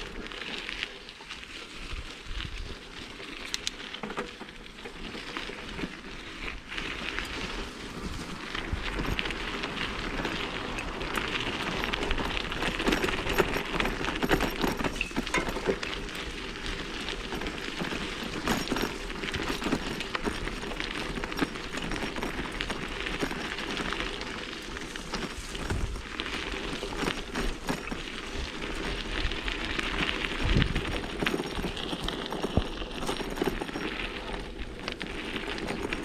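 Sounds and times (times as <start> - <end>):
bike rattles and clicks: 0.0 - 36.0
bike tyres on loose dirt: 0.0 - 36.0.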